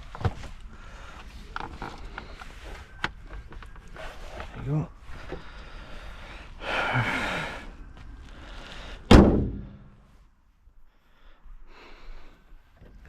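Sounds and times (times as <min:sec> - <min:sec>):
car panel slamming shut: 0:09.1 - 0:09.8.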